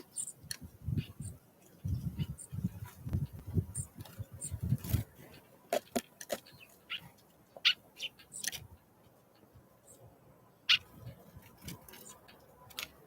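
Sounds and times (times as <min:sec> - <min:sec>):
birds pecking and tapping: 0:02.8 - 0:08.8, 0:10.7 - 0:13.0.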